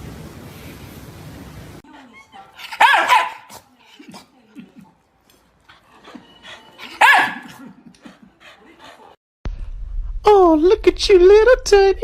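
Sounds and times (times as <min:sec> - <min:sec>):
dog barking: 0:02.5 - 0:03.7, 0:06.8 - 0:07.7.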